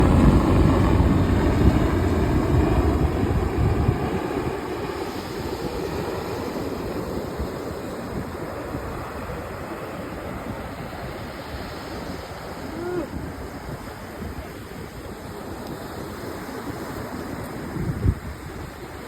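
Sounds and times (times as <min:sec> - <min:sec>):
helicopter passing: 0:00.0 - 0:11.1
faint steady rushing noise: 0:00.0 - 0:19.0.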